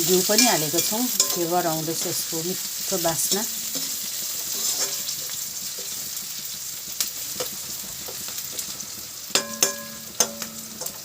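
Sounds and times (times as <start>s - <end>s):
onions sizzling in oil: 0.0s - 11.0s
spoon scraping a pan: 0.2s - 2.3s, 3.1s - 6.0s, 7.3s - 11.0s
ringing metal clanks: 9.4s - 11.0s.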